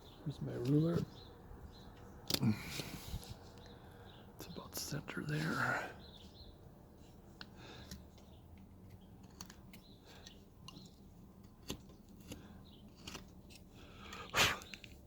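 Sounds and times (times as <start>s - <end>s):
knife snicking wood: 11.6s - 15.0s.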